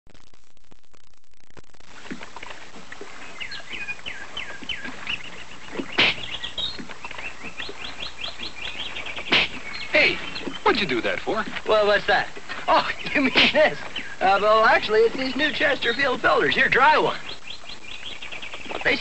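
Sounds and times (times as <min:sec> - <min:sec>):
film soundtrack hiss and hum: 0:00.1 - 0:19.0
birds chirping: 0:01.9 - 0:19.0
loud sharp sounds: 0:05.9 - 0:06.4, 0:09.2 - 0:10.3.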